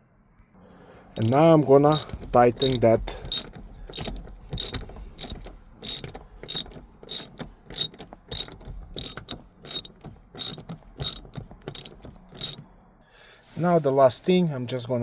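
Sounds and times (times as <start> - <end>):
ratchet pawl clicking: 1.2 - 12.6.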